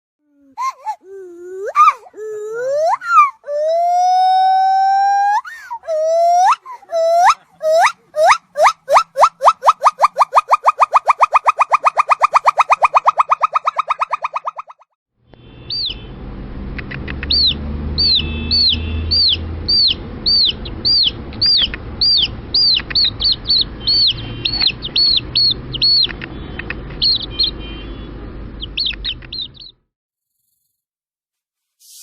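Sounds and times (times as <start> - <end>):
bird chirping: 7.0 - 14.8, 15.7 - 16.1, 17.2 - 27.7, 28.6 - 29.8.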